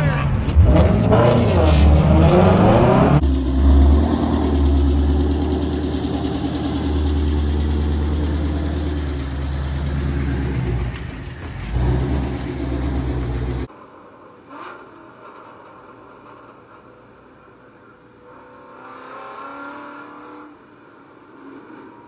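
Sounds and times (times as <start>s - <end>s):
car engine running loudly: 0.4s - 13.7s
faint background noise: 10.0s - 22.0s.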